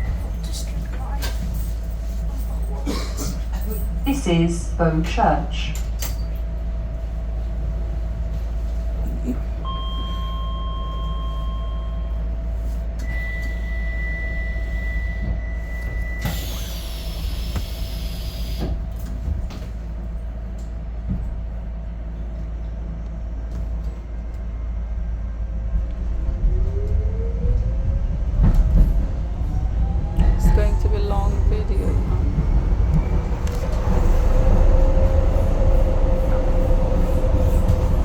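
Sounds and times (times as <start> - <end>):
train humming: 0.0 - 38.0
door warning beeps: 9.6 - 12.2, 13.0 - 18.6.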